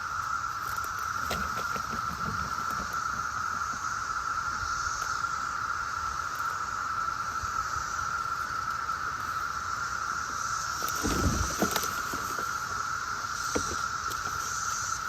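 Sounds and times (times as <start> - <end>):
cicadas buzzing: 0.0 - 15.0
brief rustles or knocks: 10.8 - 12.6.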